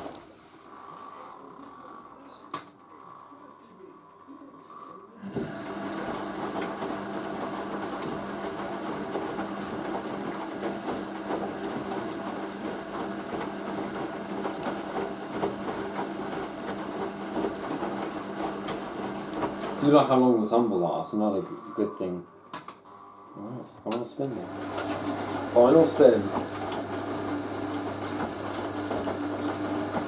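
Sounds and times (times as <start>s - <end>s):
washing machine tumbling: 0.0s - 0.4s, 5.2s - 21.4s, 24.1s - 30.0s.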